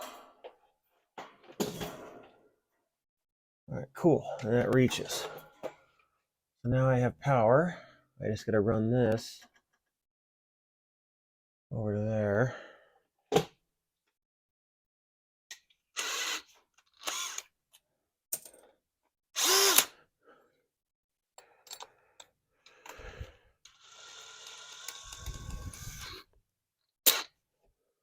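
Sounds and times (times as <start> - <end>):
knocks and clatters of tools: 0.0 - 2.4, 4.9 - 5.9
electric drill running: 16.0 - 17.4, 19.4 - 19.9, 23.7 - 26.2.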